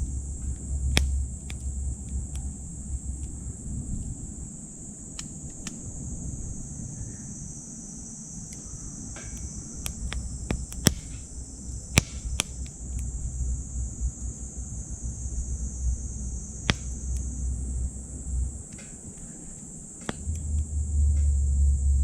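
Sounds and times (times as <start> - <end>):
low rumble: 0.0 - 4.6, 8.8 - 19.2, 20.1 - 22.0
wood fire crackling in stove: 0.0 - 5.8, 8.5 - 21.4
insects trilling: 0.0 - 22.0.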